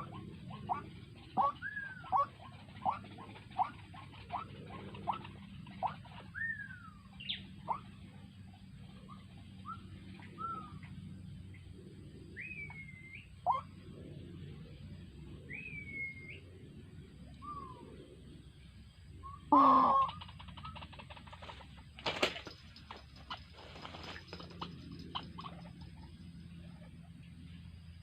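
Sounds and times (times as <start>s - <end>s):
birds whistling: 0.0s - 8.1s, 9.0s - 11.2s, 12.2s - 13.8s, 15.4s - 16.6s, 17.2s - 18.3s, 19.1s - 20.8s
faint low hum: 0.0s - 28.0s.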